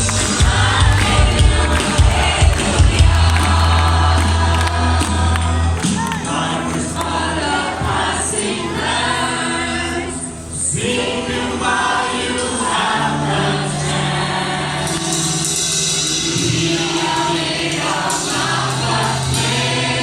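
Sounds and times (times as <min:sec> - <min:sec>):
sustained low bass notes: 0:00.0 - 0:11.5
choir singing: 0:00.0 - 0:20.0.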